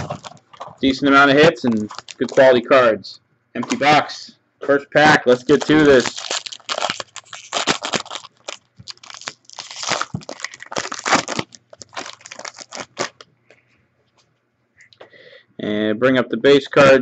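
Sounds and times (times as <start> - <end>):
wrapper tearing and crinkling: 1.7 - 2.5, 5.3 - 13.2.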